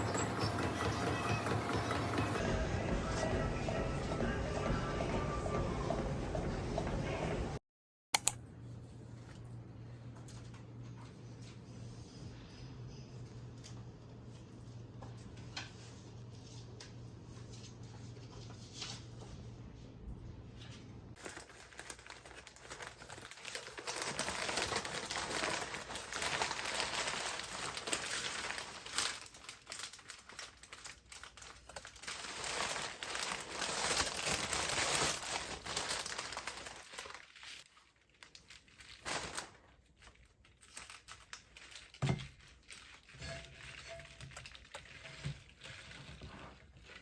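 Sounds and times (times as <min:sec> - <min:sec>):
crinkling and rustling: 0:13.1 - 0:47.0.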